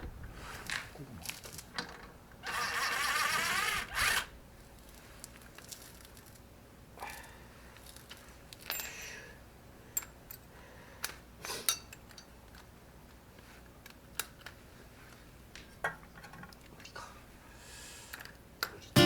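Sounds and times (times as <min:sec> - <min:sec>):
light metallic clinks: 0:08.7 - 0:09.0.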